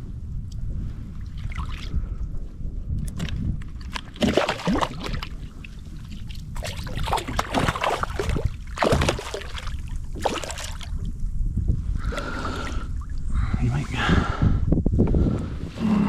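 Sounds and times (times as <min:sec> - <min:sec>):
low rumble: 0:00.0 - 0:16.0
water splashing against kayak: 0:03.0 - 0:11.1.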